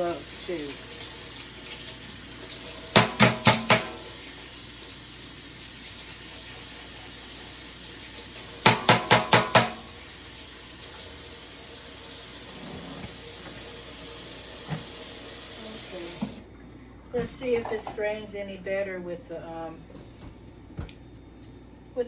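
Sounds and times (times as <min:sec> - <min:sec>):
water running at a sink: 0:00.0 - 0:17.9
utensil knocking against container: 0:03.0 - 0:04.0, 0:08.6 - 0:09.8.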